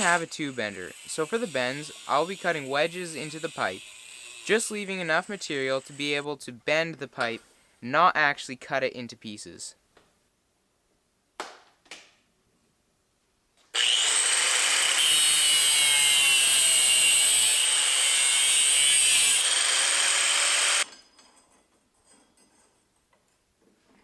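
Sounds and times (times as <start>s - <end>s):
power tool cutting metal pipe: 0.0s - 6.2s, 13.7s - 20.9s.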